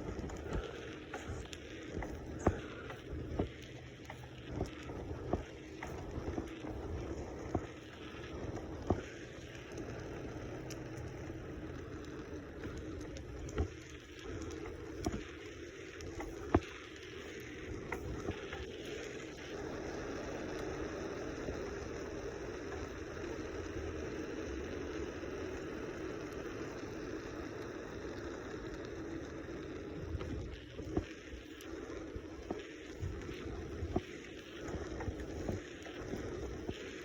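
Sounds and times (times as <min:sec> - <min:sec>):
sharp clicks and knocks: 0:00.0 - 0:10.0, 0:10.6 - 0:15.4.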